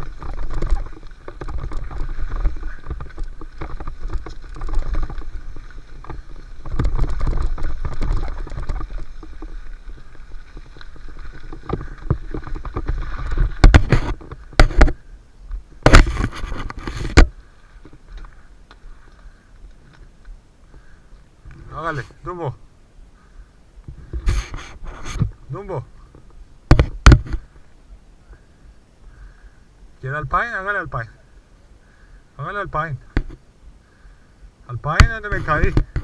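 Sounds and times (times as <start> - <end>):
bike rattling: 0.0 - 22.1, 34.8 - 36.0
tyres crunching on dirt: 0.0 - 22.6, 34.7 - 36.0.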